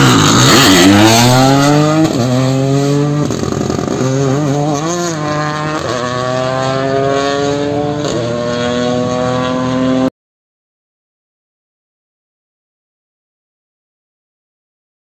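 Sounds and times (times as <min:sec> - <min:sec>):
rally car engine accelerating hard: 0:00.0 - 0:10.1.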